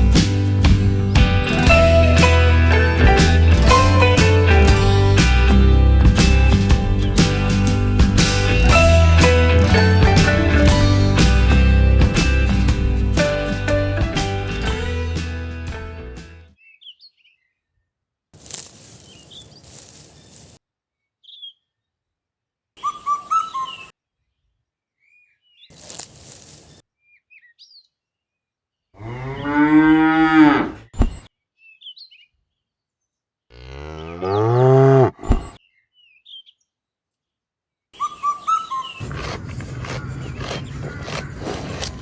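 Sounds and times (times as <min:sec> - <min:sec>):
short bursts of hiss: 0:18.4 - 0:20.6, 0:25.7 - 0:26.8
small bird chirps: 0:18.4 - 0:20.6, 0:21.2 - 0:21.7, 0:25.1 - 0:27.9
cow mooing: 0:29.0 - 0:30.8, 0:33.5 - 0:35.2.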